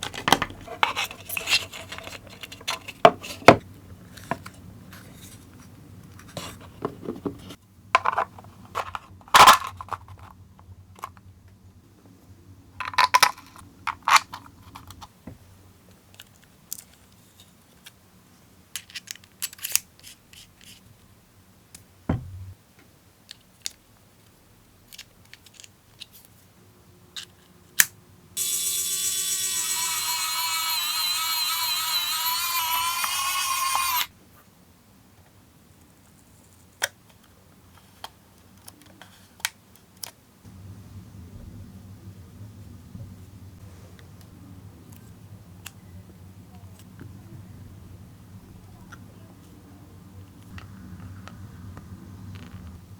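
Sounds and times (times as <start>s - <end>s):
plastic parts clicking and tapping: 24.9s - 26.2s.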